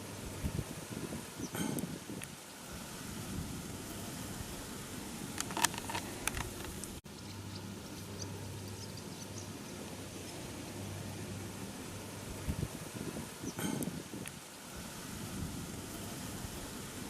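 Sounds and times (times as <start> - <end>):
background hiss and low hum: 0.0 - 17.0.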